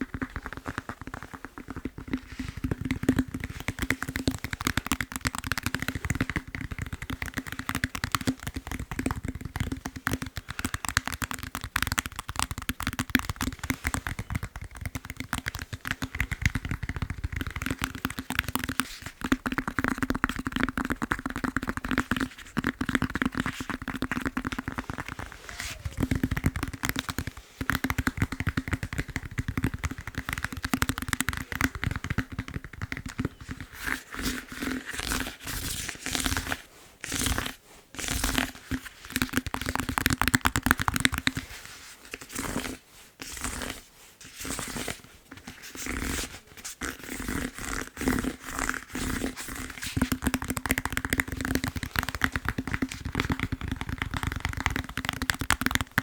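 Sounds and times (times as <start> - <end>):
fast tapping on foam roller: 0.0 - 56.0.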